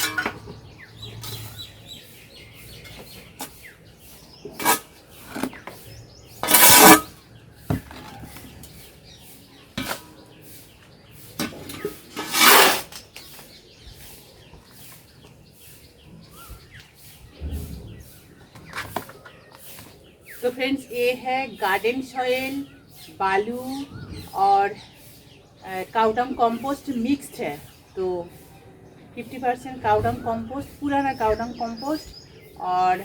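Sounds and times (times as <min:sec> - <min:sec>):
handling soil and pots: 0:00.0 - 0:17.2, 0:18.4 - 0:24.8
faint bird chirps: 0:13.3 - 0:21.1.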